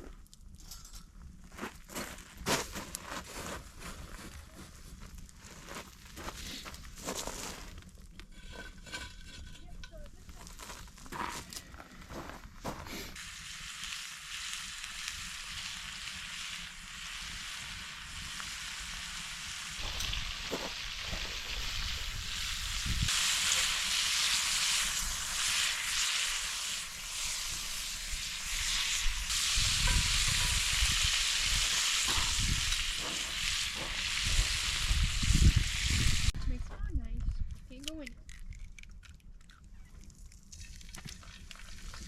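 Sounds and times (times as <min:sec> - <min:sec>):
food sizzling in a frying pan: 0:12.9 - 0:36.4
wind gusts on microphone: 0:21.4 - 0:23.1, 0:34.0 - 0:37.6.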